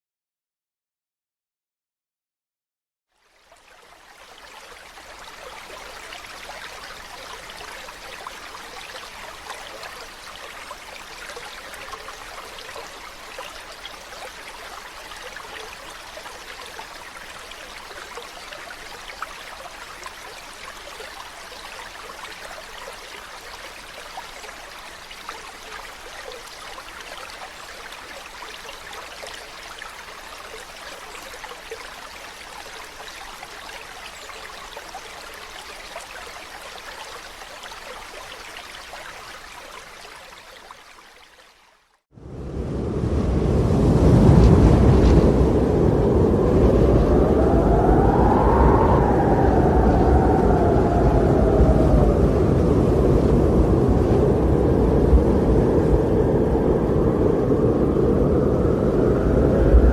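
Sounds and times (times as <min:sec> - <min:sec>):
stream water rushing: 0:03.4 - 0:42.8.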